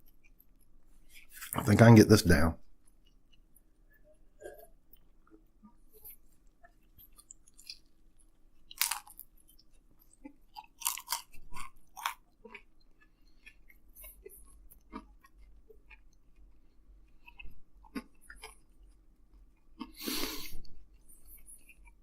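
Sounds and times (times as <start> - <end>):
chewing and biting: 4.4 - 22.0.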